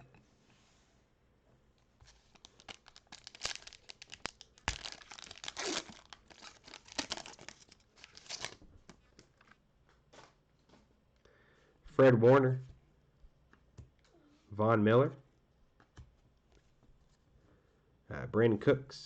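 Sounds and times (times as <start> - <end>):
foil wrapper tearing and crinkling: 2.2 - 8.6.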